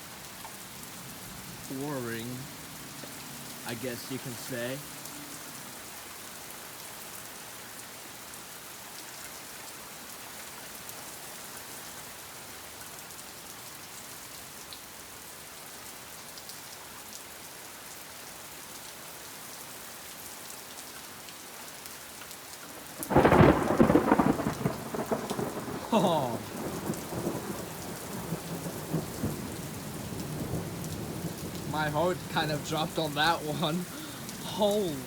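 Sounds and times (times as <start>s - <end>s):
heavy rain pouring: 0.0s - 13.0s, 18.1s - 35.0s
thunder clap and rumbling: 23.0s - 35.0s.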